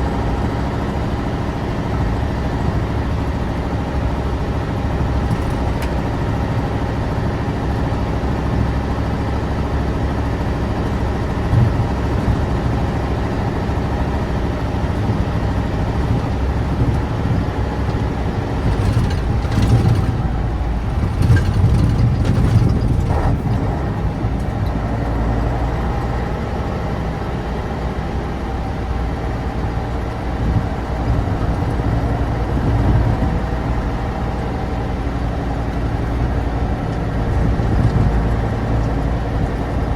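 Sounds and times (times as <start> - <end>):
diesel truck engine running: 0.0 - 39.9
clattering knocks: 18.6 - 23.6.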